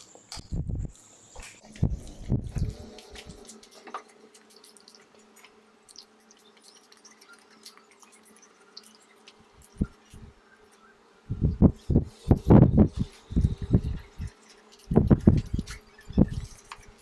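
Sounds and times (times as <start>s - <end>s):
steady low hum: 0.0s - 17.0s
chewing clicks and smacks: 2.6s - 10.2s.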